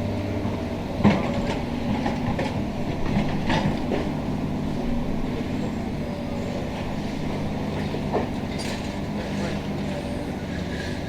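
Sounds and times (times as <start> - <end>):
excavator diesel engine running: 0.0 - 11.0
metal and masonry debris clanking: 7.8 - 9.9.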